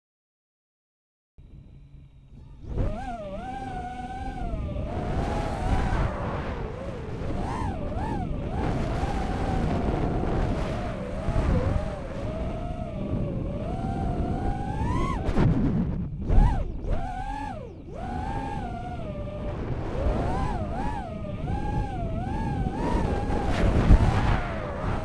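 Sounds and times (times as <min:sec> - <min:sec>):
drone motors whining: 0:01.4 - 0:25.0
wind buffeting microphone: 0:02.2 - 0:25.0.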